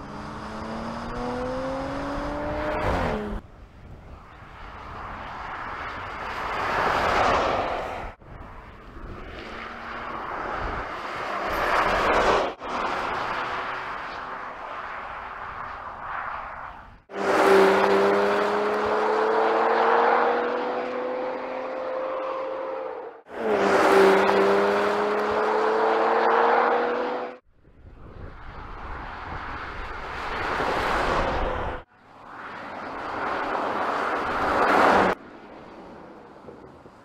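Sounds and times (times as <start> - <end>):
car engine accelerating: 0.0 - 3.4, 17.2 - 27.4
car passing: 4.5 - 27.4, 28.4 - 37.0.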